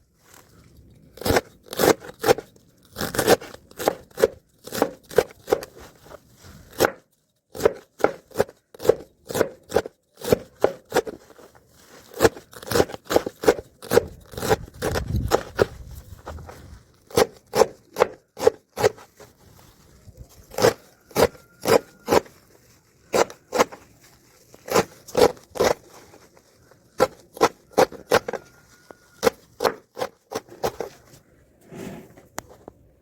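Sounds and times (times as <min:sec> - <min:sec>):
short scraping strokes: 0:30.5 - 0:32.4.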